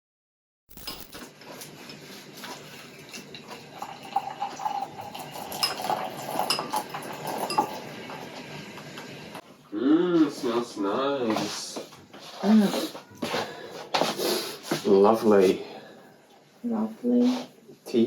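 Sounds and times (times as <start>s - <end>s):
dishes and cutlery clinking: 3.0s - 7.9s.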